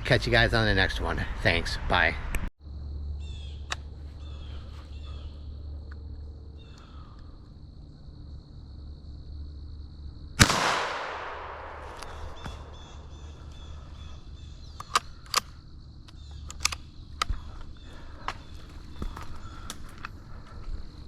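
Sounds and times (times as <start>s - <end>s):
insect trill: 0.0s - 21.0s
rifle shot with echo: 10.4s - 13.4s.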